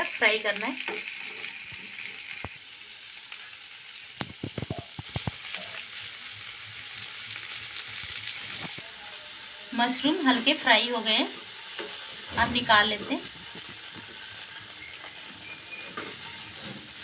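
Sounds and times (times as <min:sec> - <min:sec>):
mushrooms sizzling in oil: 0:00.0 - 0:17.0.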